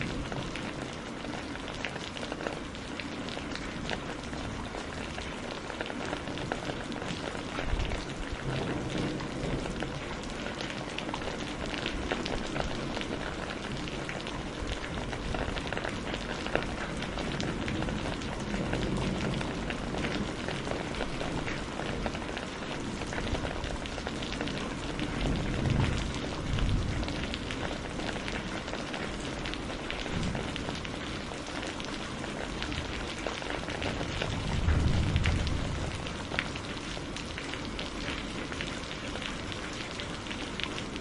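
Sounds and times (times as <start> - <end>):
steady rain: 0.0 - 41.0.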